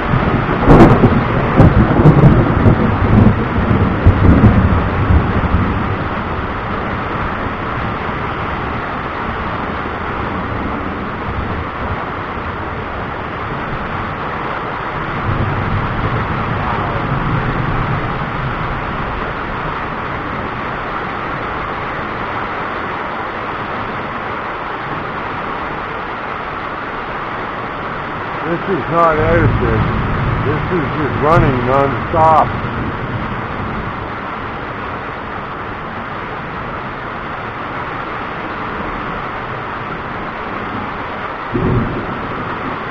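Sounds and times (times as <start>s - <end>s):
thunderclap: 0.0s - 8.0s, 15.0s - 21.4s, 40.7s - 42.9s
low thunder rumble: 0.0s - 42.9s
steady rushing noise: 0.0s - 42.9s.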